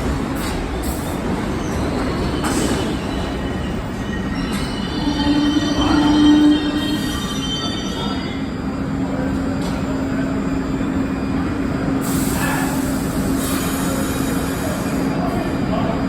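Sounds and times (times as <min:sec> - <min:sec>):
subway train rumble: 0:00.0 - 0:16.0
wheel squeal: 0:01.6 - 0:08.4.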